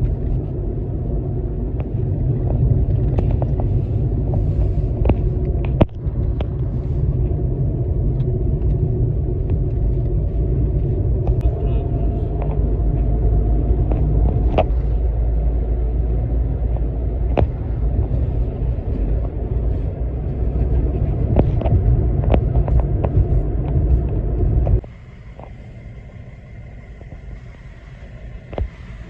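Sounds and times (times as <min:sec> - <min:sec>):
vehicle rumble: 0:00.0 - 0:29.0
faint high hum: 0:09.7 - 0:16.0.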